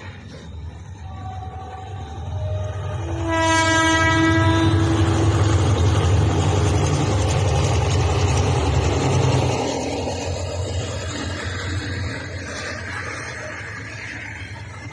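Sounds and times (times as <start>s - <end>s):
heavy rumble of train: 0.0s - 14.9s
train horn blast: 1.0s - 5.7s.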